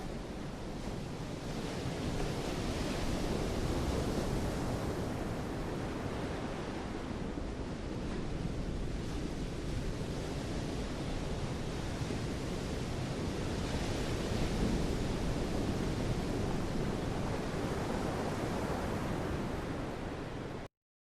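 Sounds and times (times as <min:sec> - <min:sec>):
sea surf: 0:00.0 - 0:20.7
wind: 0:00.0 - 0:20.7.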